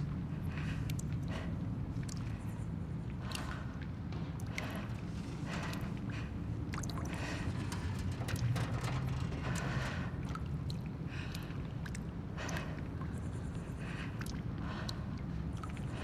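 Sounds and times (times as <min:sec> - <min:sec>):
rustles and scrapes: 0:07.0 - 0:10.5
low rumble: 0:07.0 - 0:11.1.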